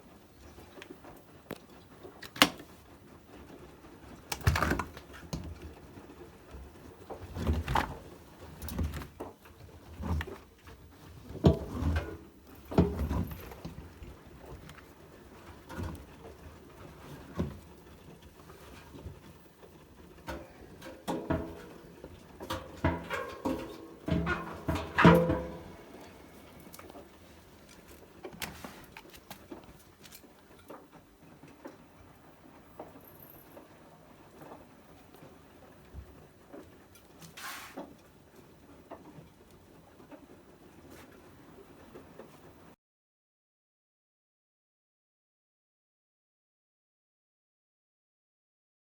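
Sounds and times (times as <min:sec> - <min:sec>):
washing machine running: 0:00.6 - 0:37.2
washing machine thuds and clunks: 0:11.2 - 0:14.6, 0:20.3 - 0:27.2
soft knocks and clicks: 0:20.3 - 0:27.0.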